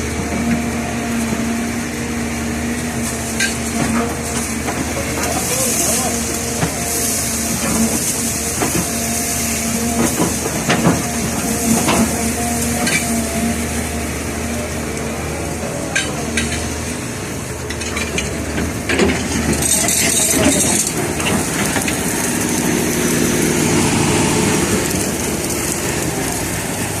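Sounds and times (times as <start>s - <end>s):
heavy diesel machinery running: 0.0s - 27.0s
sand and stones sifting on screen: 5.3s - 13.7s.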